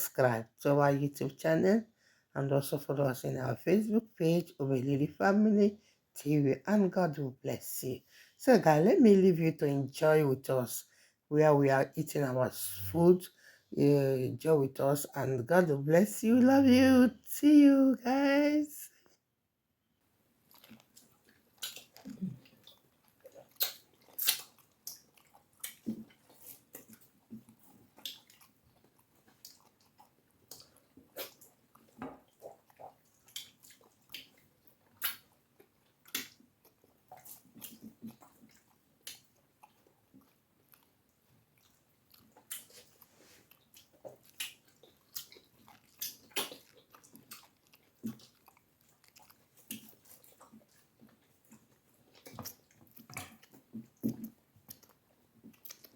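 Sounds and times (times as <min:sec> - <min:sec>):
wet mouth smacks and chewing: 0:20.5 - 0:55.9.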